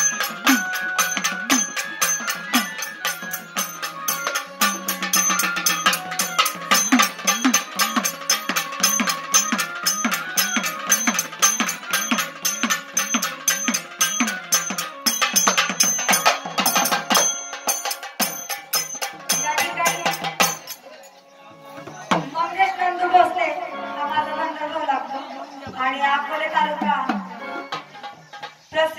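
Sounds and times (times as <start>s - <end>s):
drum strokes: 0.0s - 21.0s
ringing metallic clinks: 0.0s - 21.3s.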